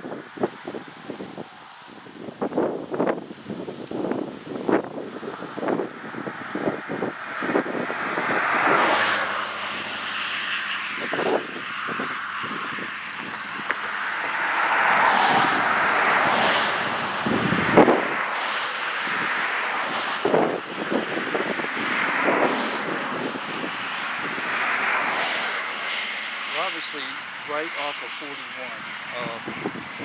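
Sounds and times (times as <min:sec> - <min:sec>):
highway traffic passing: 0:00.0 - 0:30.0
wind buffeting microphone: 0:00.0 - 0:30.0.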